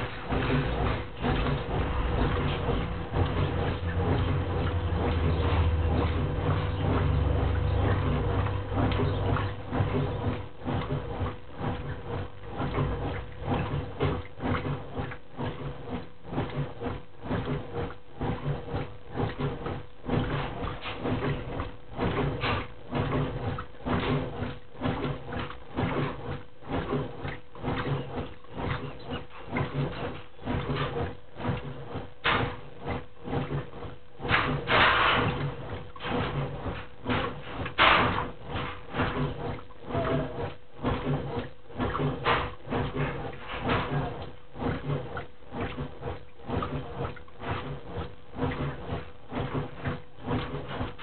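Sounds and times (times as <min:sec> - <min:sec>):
motor hum: 0:00.0 - 0:51.0
washing machine agitator churning water: 0:00.0 - 0:51.0
water sloshing: 0:00.0 - 0:51.0.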